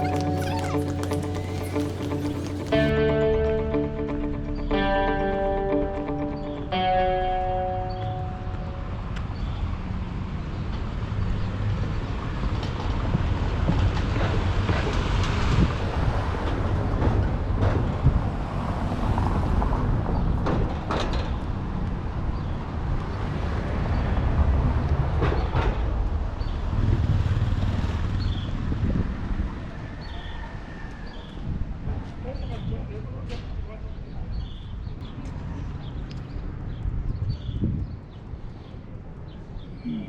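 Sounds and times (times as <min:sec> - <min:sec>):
motor vehicle rumble: 0:00.0 - 0:03.6, 0:07.6 - 0:30.0
street traffic noise: 0:00.0 - 0:40.0.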